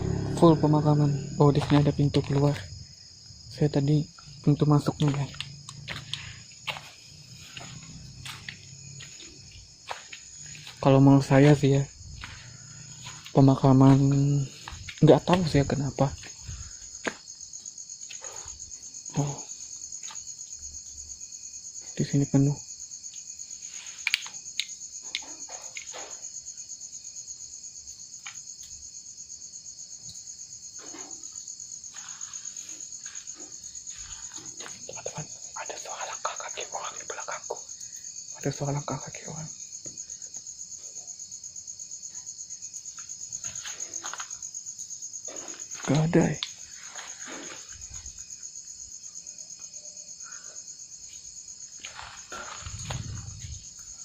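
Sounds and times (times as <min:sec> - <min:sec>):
crickets chirping: 0:00.0 - 0:54.0
insects trilling: 0:00.0 - 0:54.0
low rustle: 0:51.9 - 0:54.0.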